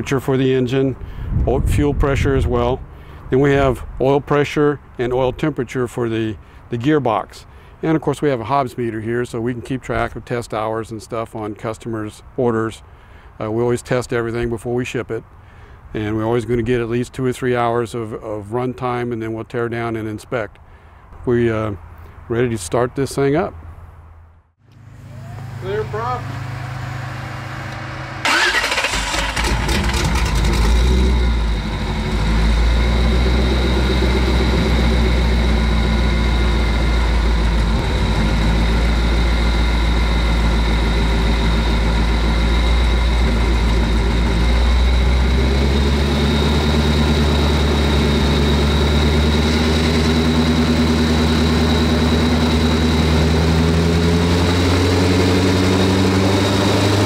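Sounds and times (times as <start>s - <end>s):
engine running steadily: 24.7s - 57.0s
engine starter cranking: 28.2s - 31.2s.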